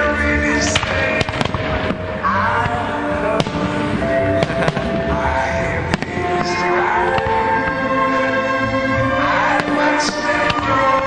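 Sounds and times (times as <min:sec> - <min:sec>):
music playing: 0:00.0 - 0:11.0
firework bangs: 0:00.6 - 0:07.7.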